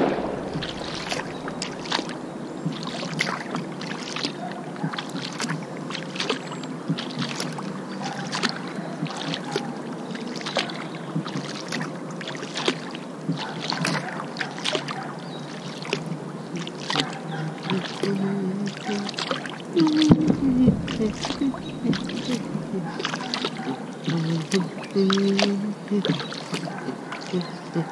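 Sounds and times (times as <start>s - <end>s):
kayak paddle splashing in water: 0.0s - 27.9s.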